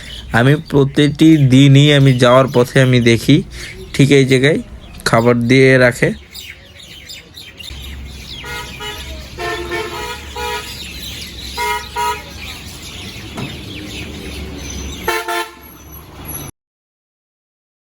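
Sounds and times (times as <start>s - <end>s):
road traffic rumble: 0.0s - 16.5s
vehicle horns honking: 8.3s - 12.6s, 14.8s - 16.5s.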